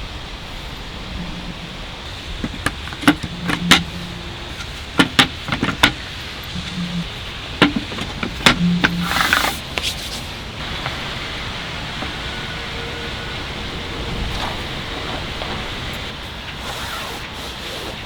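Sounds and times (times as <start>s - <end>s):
steady rushing background: 0.0s - 16.6s
sharp clicks and knocks: 2.2s - 10.0s.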